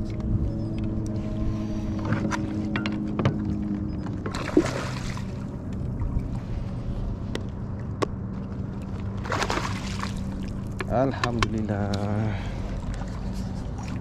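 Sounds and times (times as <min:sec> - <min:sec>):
steady low hum: 0:00.0 - 0:14.0
water splashing against kayak: 0:09.0 - 0:10.8.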